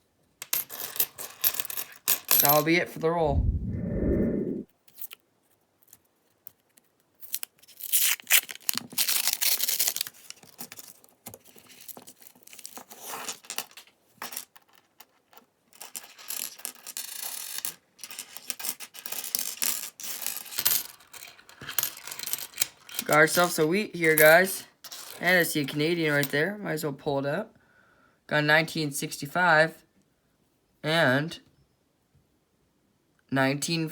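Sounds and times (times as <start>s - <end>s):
small clicks and rustling: 4.9s - 7.8s
paper wrapper tearing and crinkling: 7.3s - 10.4s.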